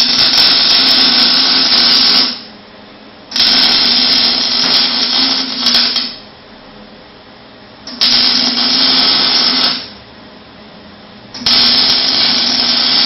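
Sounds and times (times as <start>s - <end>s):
welding arc crackling and hissing: 0.0s - 2.5s, 3.3s - 6.2s, 7.9s - 10.0s, 11.4s - 13.0s
low steady hum: 0.0s - 13.0s.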